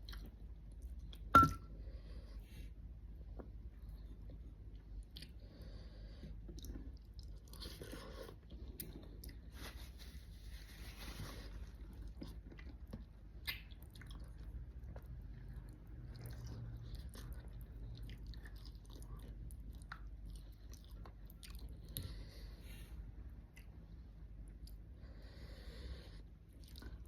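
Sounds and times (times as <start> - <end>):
chewing and biting food: 11.5 - 22.2, 26.5 - 27.0.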